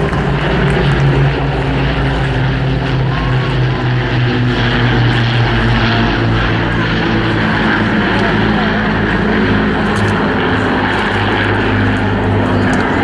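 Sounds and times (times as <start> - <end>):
propeller plane engine drone: 0.0 - 13.0.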